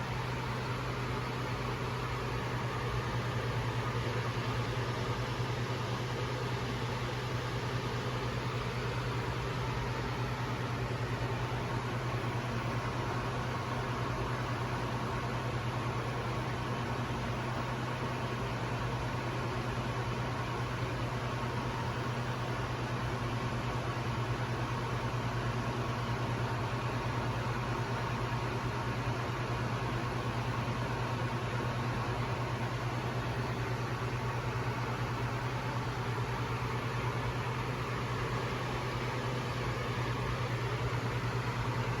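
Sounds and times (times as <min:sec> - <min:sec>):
constant low hum: 0:00.0 - 0:42.0.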